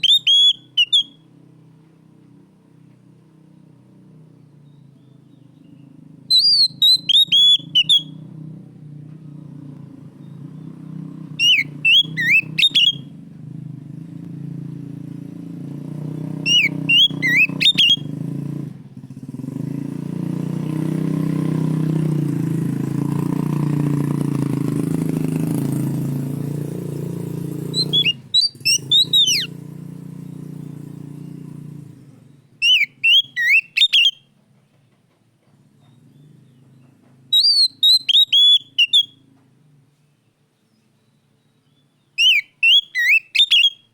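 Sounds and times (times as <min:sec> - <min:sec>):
bird singing whistled phrases: 0:00.0 - 0:01.2, 0:04.7 - 0:08.2, 0:11.4 - 0:13.1, 0:16.4 - 0:18.1, 0:27.7 - 0:29.5, 0:32.6 - 0:34.3, 0:37.3 - 0:39.2, 0:41.0 - 0:43.9
vehicle engine drone: 0:00.0 - 0:40.6.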